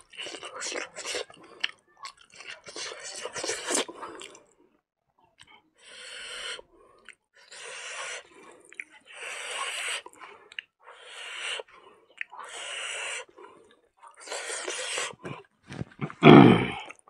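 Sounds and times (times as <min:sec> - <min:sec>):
wet crunchy chewing: 0:00.0 - 0:04.5, 0:11.6 - 0:17.0.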